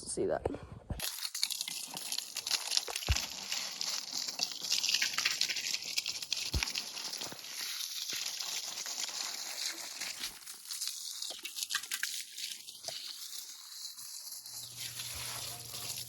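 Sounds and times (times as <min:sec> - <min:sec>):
water spraying hiss: 0:06.5 - 0:16.0.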